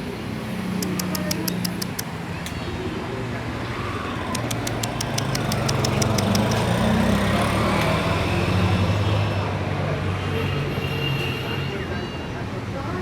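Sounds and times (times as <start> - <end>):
sharp clicks: 0.8 - 2.1, 4.2 - 6.7.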